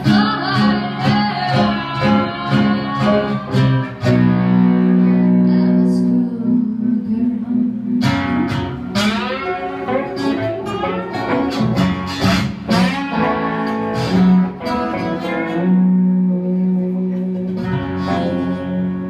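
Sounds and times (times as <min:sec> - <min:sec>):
bent guitar notes: 0:00.0 - 0:19.0
blues band playing: 0:00.0 - 0:19.0.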